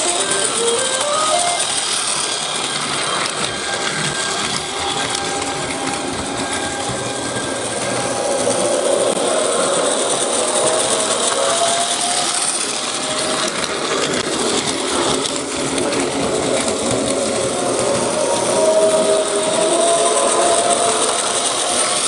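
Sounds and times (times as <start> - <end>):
electric train running: 0.0 - 22.0
train motor whine: 0.0 - 22.0.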